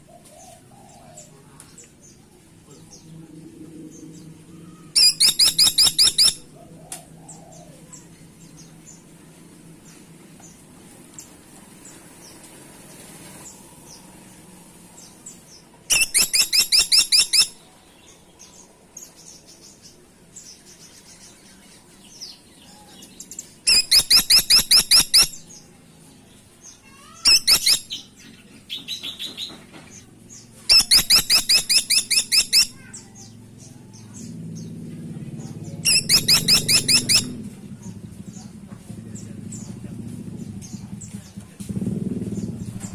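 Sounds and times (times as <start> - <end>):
woodpecker rattling calls: 5.0 - 6.5, 15.9 - 17.6, 23.6 - 25.4, 26.8 - 28.2, 30.7 - 33.1, 35.8 - 37.4.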